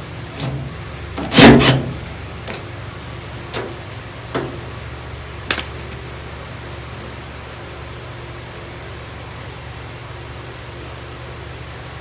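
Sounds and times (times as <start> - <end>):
low machine hum: 0.0 - 12.0
tools and sheet metal clattering: 0.2 - 4.9.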